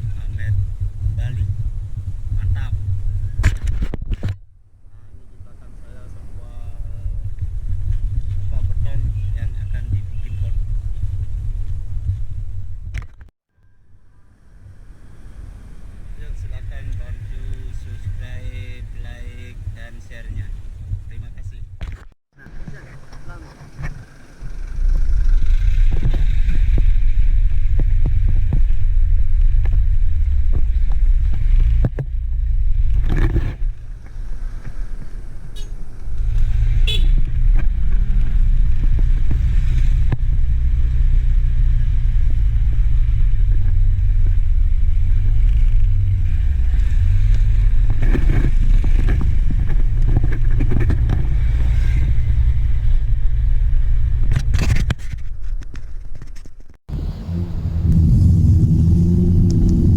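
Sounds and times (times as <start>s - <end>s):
vehicle rumbling on road: 0.0s - 59.9s.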